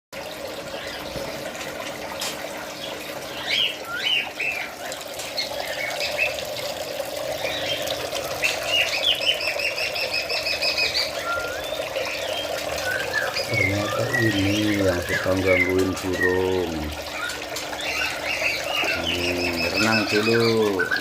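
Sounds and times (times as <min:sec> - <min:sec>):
running water: 0:00.1 - 0:21.0
small birds chirping: 0:00.5 - 0:21.0.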